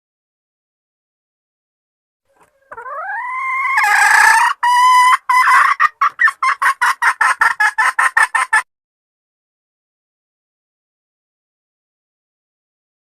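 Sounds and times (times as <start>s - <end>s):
hen calling and clucking: 2.3s - 8.6s.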